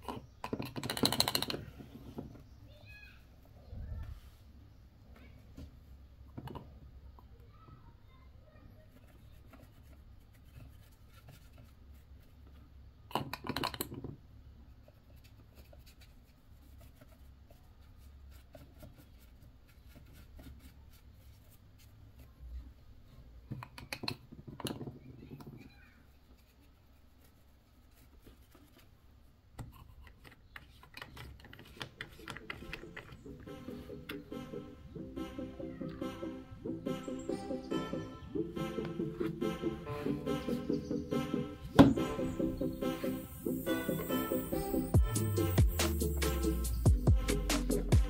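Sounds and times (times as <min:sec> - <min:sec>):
small scratching and clicking: 0:00.0 - 0:02.6, 0:08.6 - 0:33.4.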